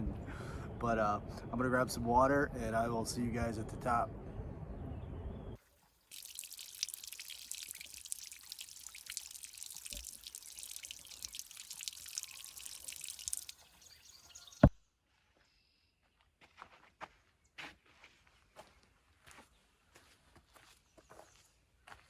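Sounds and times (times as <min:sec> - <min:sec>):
water drops pattering: 0:06.1 - 0:13.7.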